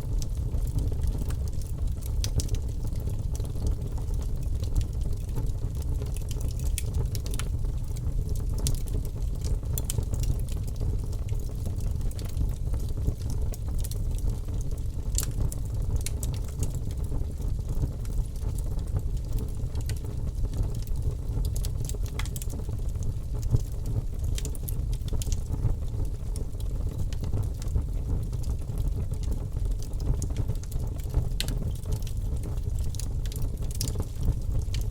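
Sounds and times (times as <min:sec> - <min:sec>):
logs crackling in a fireplace: 0:00.0 - 0:34.9
low rumble of flames: 0:00.0 - 0:34.9.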